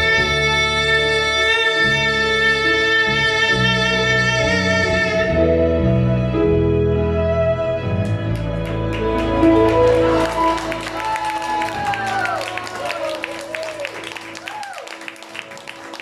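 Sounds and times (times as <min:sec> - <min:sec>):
bass line: 0:00.0 - 0:13.5
live rock band playing: 0:07.9 - 0:12.8.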